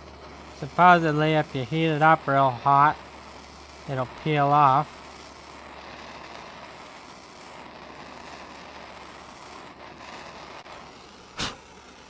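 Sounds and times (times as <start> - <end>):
gas torch flame hissing: 0.0 - 12.0
sharp loud burst: 11.3 - 11.8.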